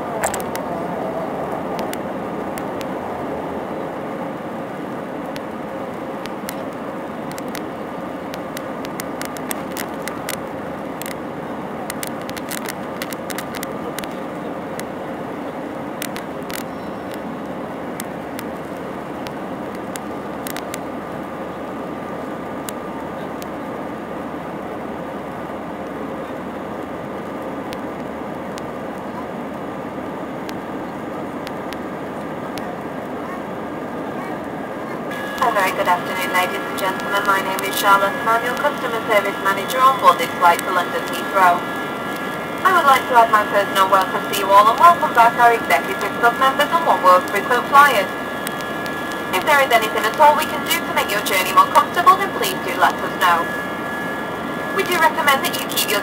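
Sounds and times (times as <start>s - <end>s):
jet engines roaring in cabin: 0.0s - 56.0s
steady hum: 0.0s - 56.0s
sharp clicks: 1.8s - 2.9s, 6.2s - 7.7s, 8.3s - 11.2s, 11.8s - 14.2s, 16.0s - 18.5s, 19.2s - 20.9s, 48.4s - 50.3s
rushing air: 40.3s - 42.8s.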